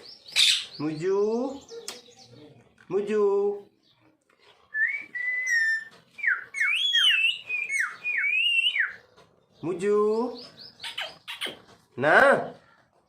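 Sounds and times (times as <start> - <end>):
parrot whistling: 4.8 - 9.0.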